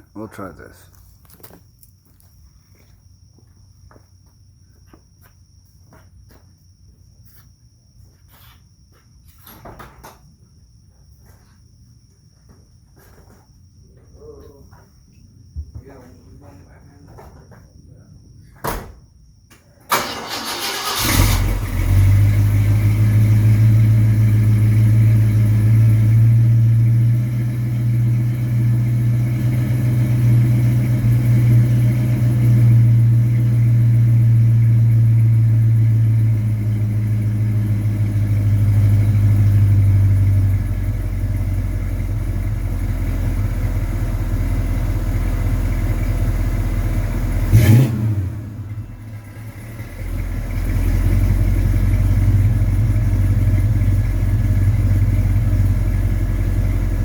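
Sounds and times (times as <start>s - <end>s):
car engine starting and idling: 19.9s - 57.0s.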